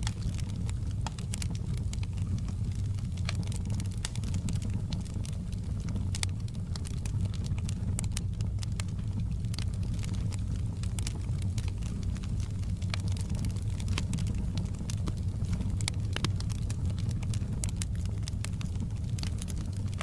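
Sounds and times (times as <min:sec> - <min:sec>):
fire crackling and popping: 0:00.0 - 0:20.0
fire flames rumbling: 0:00.0 - 0:20.0.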